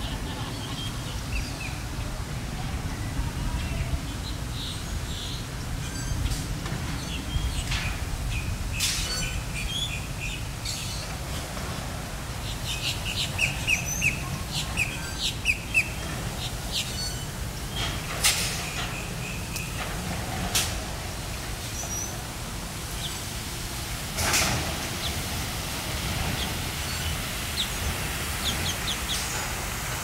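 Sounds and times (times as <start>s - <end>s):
small birds chirping: 12.4s - 19.9s, 26.2s - 29.4s.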